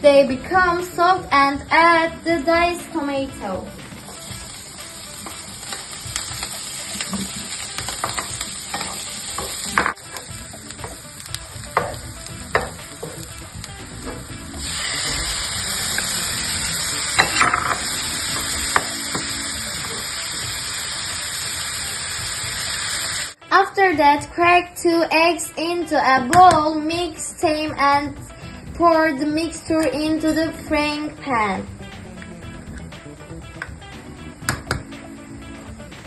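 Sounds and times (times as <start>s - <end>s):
peppers sizzling in oil: 0.6s - 23.4s.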